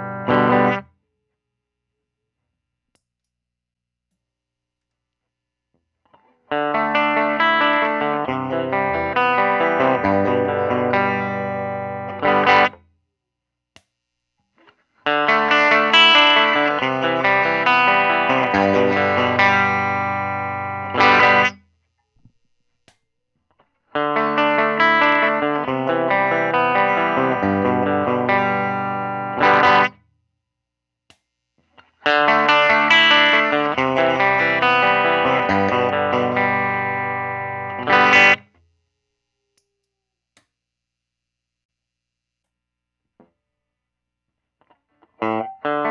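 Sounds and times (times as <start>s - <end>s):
clean electric guitar chords: 0.0s - 0.8s, 6.6s - 12.7s, 15.1s - 21.5s, 24.0s - 30.0s, 32.1s - 38.4s, 45.2s - 45.9s.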